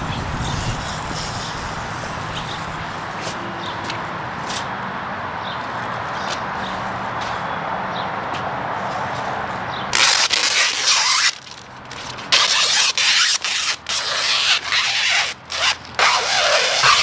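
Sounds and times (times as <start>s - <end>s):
hissing scraping rub strokes on film: 0.4s - 3.4s, 10.0s - 17.0s.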